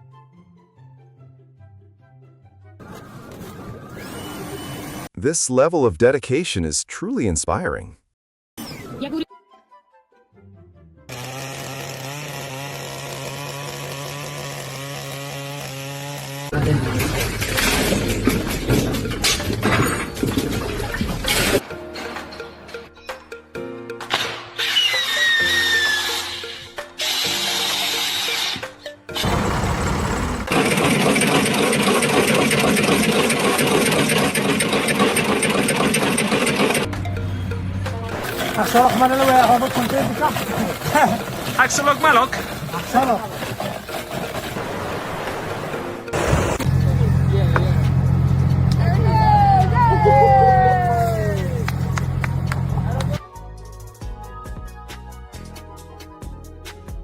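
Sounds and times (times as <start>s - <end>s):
small motor humming: 11.1s - 16.6s, 26.1s - 36.9s
rough noise with knocks and clatter: 16.5s - 22.8s.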